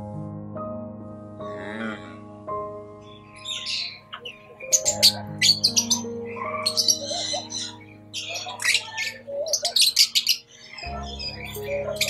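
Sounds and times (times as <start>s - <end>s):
background music with held notes: 0.0s - 12.0s
lovebirds chirping and squawking: 2.9s - 12.0s.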